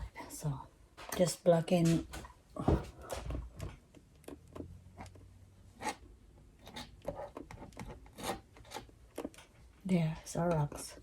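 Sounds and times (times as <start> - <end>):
palette knife scraping canvas: 5.7 - 9.5.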